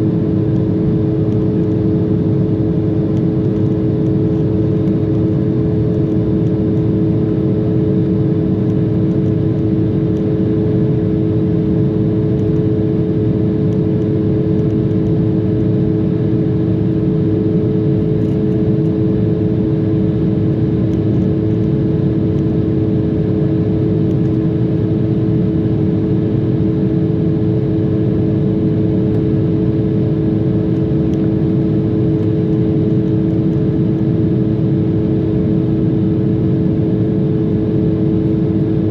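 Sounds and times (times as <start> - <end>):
jet cabin engine and airflow rush: 0.0 - 38.9.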